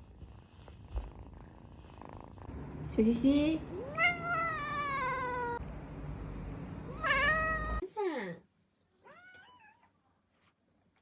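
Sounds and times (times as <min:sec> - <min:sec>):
cat meowing: 0:03.7 - 0:05.6, 0:06.9 - 0:07.8, 0:09.0 - 0:09.9.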